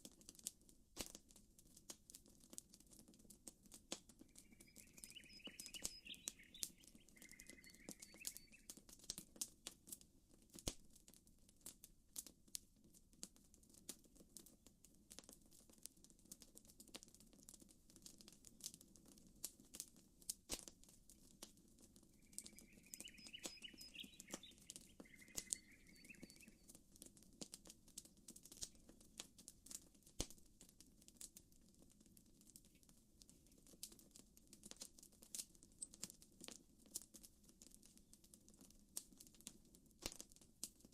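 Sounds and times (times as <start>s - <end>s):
campfire crackling and popping: 0.0s - 40.9s
bird chirping: 4.2s - 8.8s, 22.1s - 26.7s.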